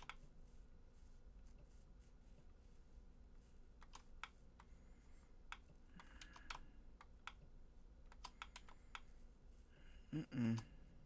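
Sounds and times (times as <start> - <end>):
computer keys clicking: 0.0 - 0.2, 3.8 - 4.7, 5.5 - 7.5, 8.1 - 9.1.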